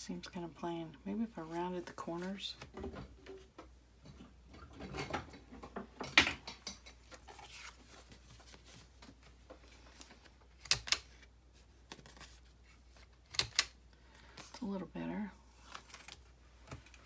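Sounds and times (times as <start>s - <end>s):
paper handling: 7.1s - 14.6s.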